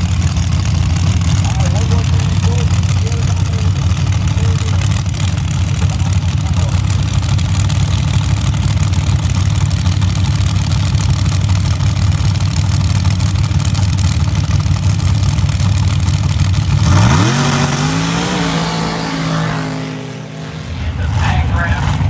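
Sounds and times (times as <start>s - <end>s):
race vehicle engine revving: 0.0s - 22.0s.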